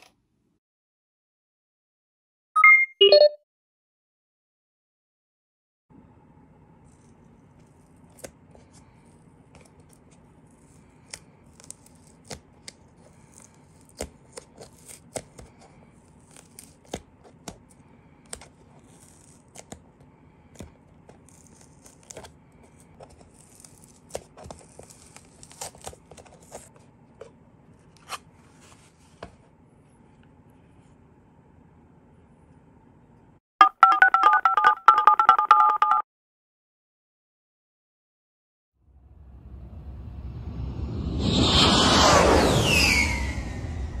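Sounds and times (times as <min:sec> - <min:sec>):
low steady background hum: 0:05.9 - 0:33.4
cardboard box tearing open: 0:23.1 - 0:26.7.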